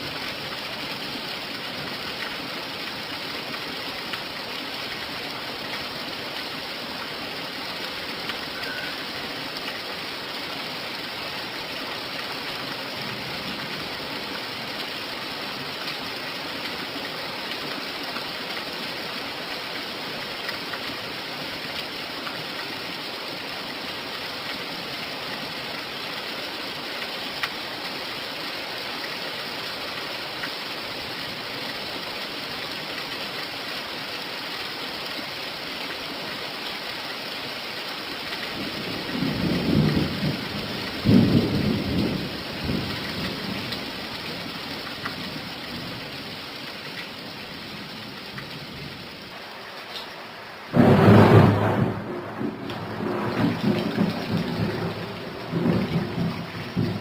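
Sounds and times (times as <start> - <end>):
rain falling: 0.0 - 57.0
thunder rumbling: 39.1 - 43.6, 50.7 - 57.0.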